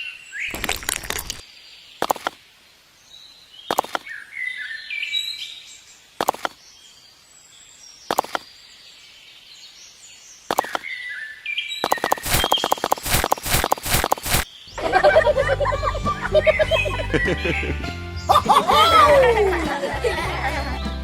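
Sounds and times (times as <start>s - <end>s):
birds chirping: 3.1s - 21.0s
quick run of clicks: 6.2s - 6.6s, 11.8s - 14.5s.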